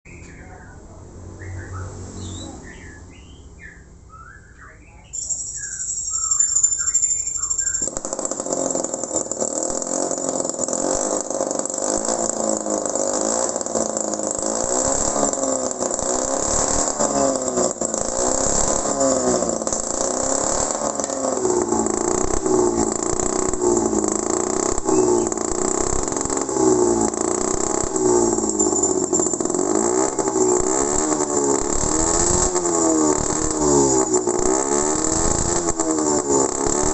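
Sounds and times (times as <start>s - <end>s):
birds chirping: 0.0s - 8.0s, 24.7s - 25.5s, 28.7s - 31.2s
small engine whining and running: 5.3s - 36.9s.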